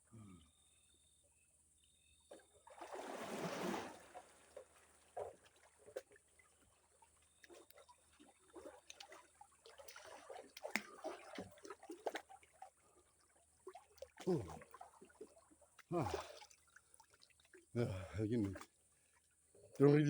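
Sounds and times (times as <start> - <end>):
water splashing: 2.3 - 18.7
water dripping: 4.6 - 19.8.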